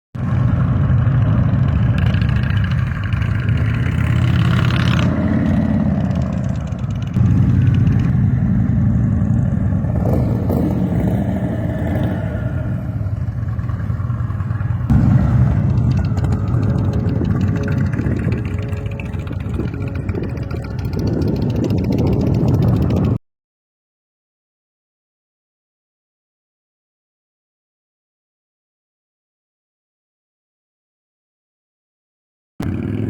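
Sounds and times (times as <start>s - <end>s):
motorcycle engines running: 0.2s - 23.2s, 32.6s - 33.0s.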